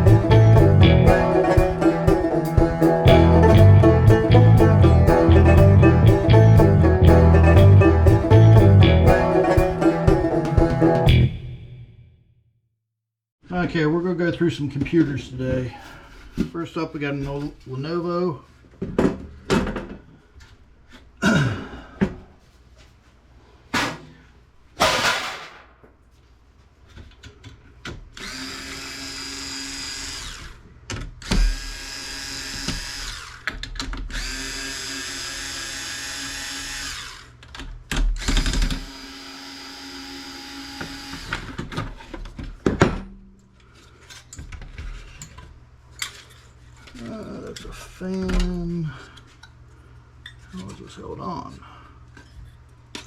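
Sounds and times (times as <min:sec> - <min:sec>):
cordless drill motor whining: 0:28.2 - 0:30.6, 0:31.2 - 0:33.5, 0:34.1 - 0:37.4, 0:38.2 - 0:41.6.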